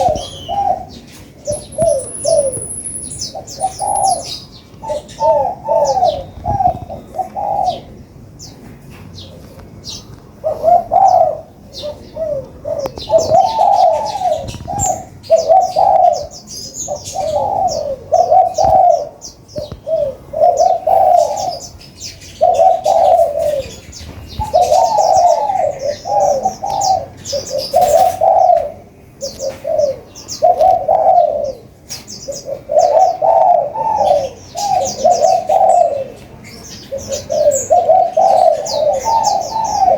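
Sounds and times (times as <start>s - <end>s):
sunbirds high quick chirps: 0.0s - 7.2s
doves cooing: 0.0s - 39.9s.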